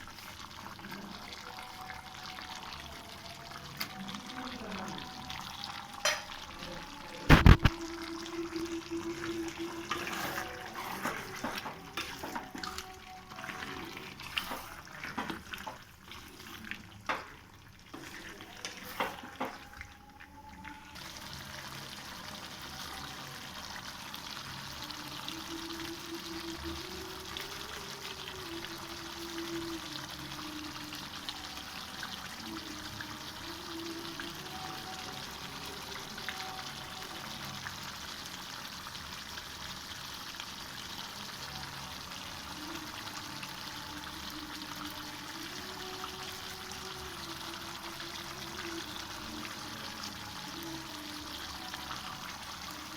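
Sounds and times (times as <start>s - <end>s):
liquid hissing in pan: 7.2s - 19.6s.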